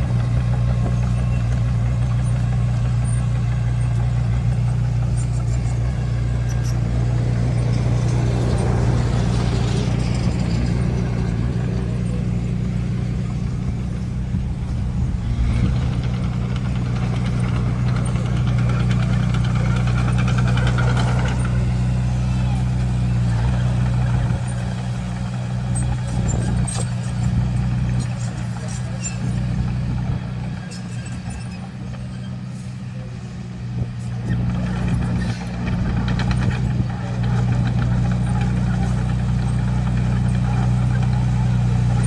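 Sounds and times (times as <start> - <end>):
bulldozer diesel engine droning: 0.0 - 42.0.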